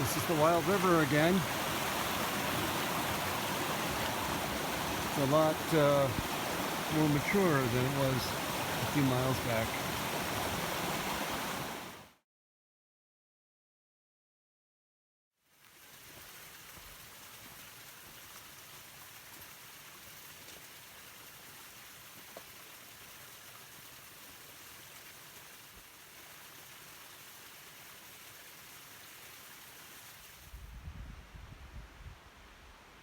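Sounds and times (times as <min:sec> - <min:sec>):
fast-flowing river rushing: 0:00.0 - 0:12.0.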